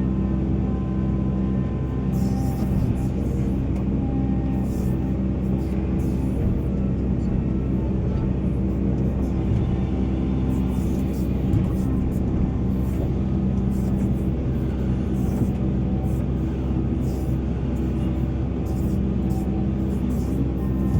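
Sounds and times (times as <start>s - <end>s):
excavator diesel engine droning: 0.0s - 20.9s.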